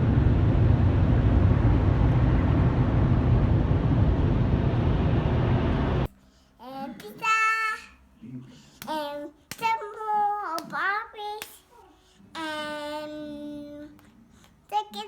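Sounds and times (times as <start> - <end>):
car wash machinery rushing: 0.0 - 6.1
young child's voice: 6.6 - 8.0, 8.8 - 14.0, 14.7 - 15.0.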